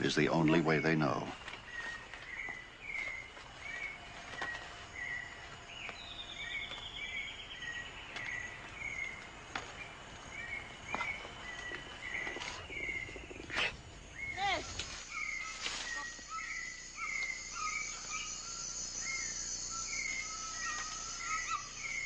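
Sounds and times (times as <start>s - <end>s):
bird chirping: 0.0s - 22.0s
high insect buzz: 4.1s - 22.0s.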